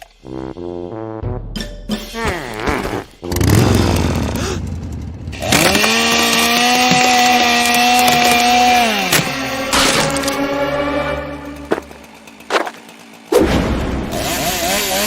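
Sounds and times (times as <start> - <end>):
chainsaw engine revving: 3.2 - 15.0.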